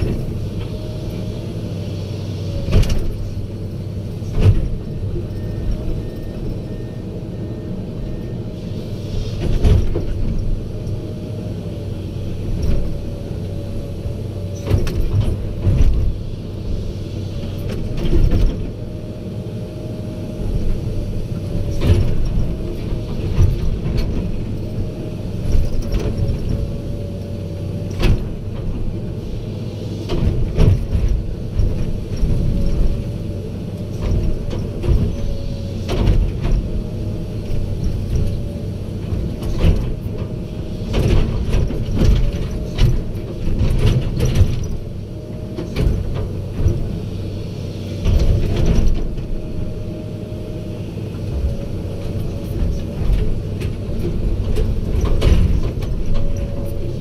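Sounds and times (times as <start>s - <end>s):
excavator diesel engine: 0.0s - 57.0s
machine knocks and clanks: 2.6s - 3.4s, 4.2s - 5.7s, 9.4s - 10.6s, 14.6s - 16.2s, 17.4s - 18.7s, 27.8s - 29.0s, 30.1s - 33.1s, 33.8s - 47.0s, 48.0s - 49.6s, 51.1s - 57.0s.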